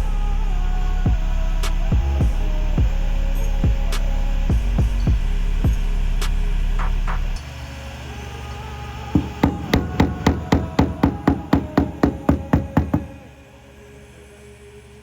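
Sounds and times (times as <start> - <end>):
rapid hammer taps on car panel: 9.2 - 13.1.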